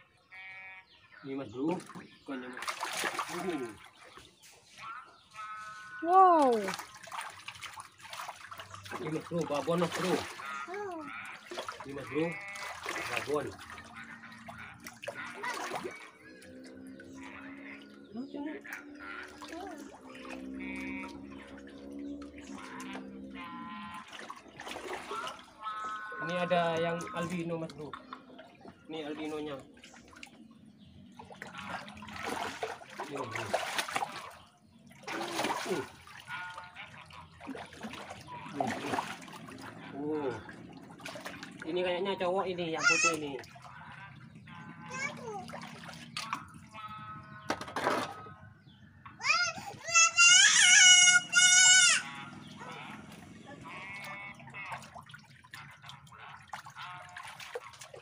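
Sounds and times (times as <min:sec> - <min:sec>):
muddy water splashing: 0:00.0 - 0:58.0
faint bleating calls: 0:00.3 - 0:01.2, 0:04.8 - 0:06.2, 0:10.4 - 0:12.8, 0:17.1 - 0:21.3, 0:22.6 - 0:24.2, 0:25.2 - 0:26.3, 0:49.9 - 0:54.9.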